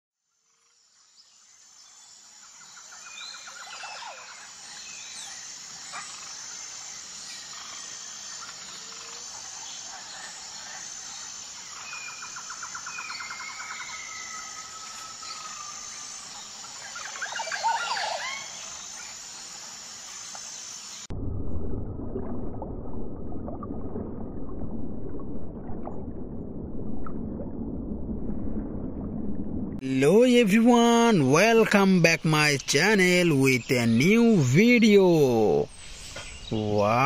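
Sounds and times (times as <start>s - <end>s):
high insect chorus: 0.4s - 21.1s, 29.8s - 37.0s.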